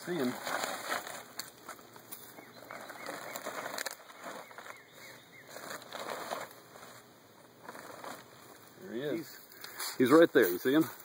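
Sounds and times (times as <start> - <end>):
plastic tarp crinkling: 0.0 - 1.5, 2.6 - 8.8
birds chirping: 1.2 - 11.0.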